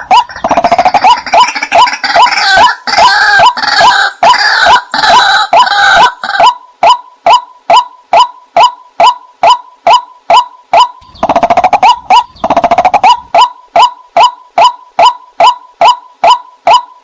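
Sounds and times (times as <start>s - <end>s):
bird calling short sharp notes: 6.4s - 17.0s
bird rattling chatter: 11.1s - 13.1s.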